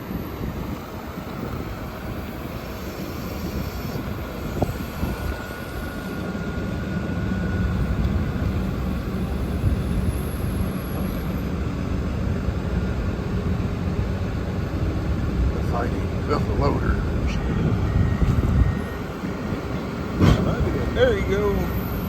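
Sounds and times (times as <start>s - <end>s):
diesel engine rumbling: 0.0s - 22.0s
faint high whine: 0.8s - 11.5s.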